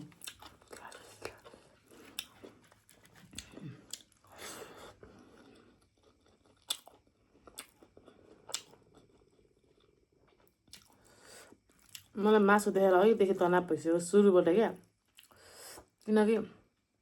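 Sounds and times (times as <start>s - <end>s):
person chewing tough meat: 0.0s - 12.1s, 15.2s - 15.6s.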